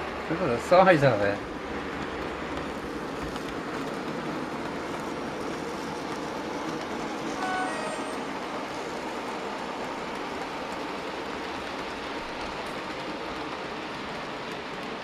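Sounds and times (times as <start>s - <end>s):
model train rumbling on track: 0.0s - 15.0s
two-note train horn: 7.4s - 8.3s.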